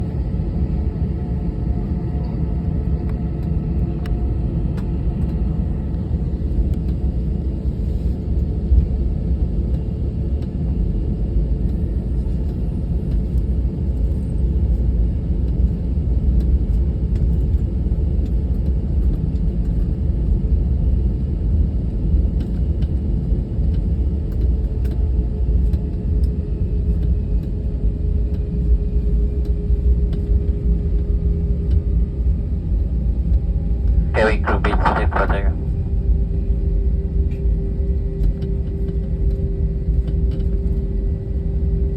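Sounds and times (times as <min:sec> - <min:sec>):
airliner engine rumble: 0:00.0 - 0:41.9
faint steady whine: 0:34.0 - 0:35.6.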